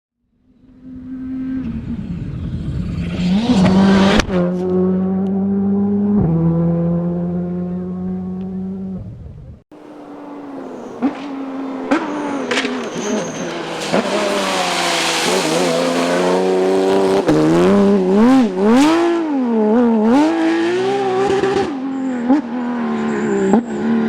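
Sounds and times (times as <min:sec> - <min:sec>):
rally car engines revving: 0:00.6 - 0:09.1, 0:09.7 - 0:24.0
sharp cracks: 0:11.0 - 0:16.0.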